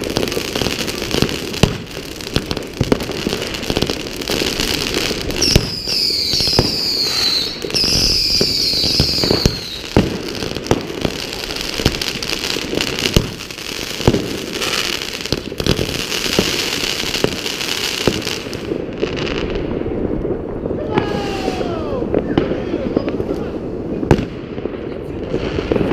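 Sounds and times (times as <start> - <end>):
fireworks banging: 0.0 - 25.9
fireworks crackling: 0.0 - 25.9
firework whistles falling in pitch: 5.4 - 10.0.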